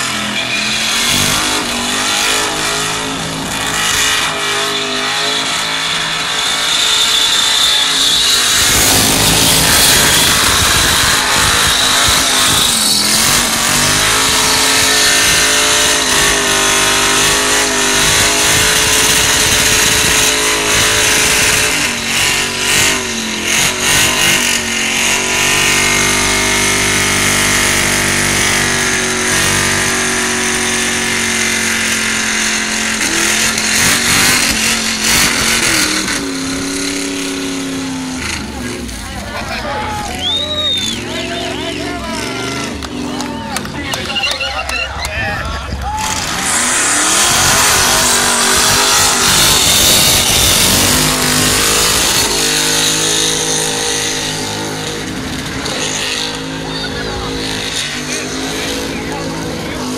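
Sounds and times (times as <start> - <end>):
truck engine revving high: 0.0 - 59.9
tyres spinning: 31.4 - 59.9.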